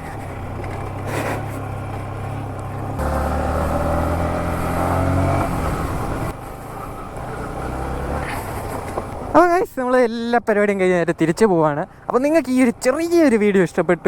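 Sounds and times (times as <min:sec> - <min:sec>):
motorcycle engine running: 0:00.0 - 0:06.4.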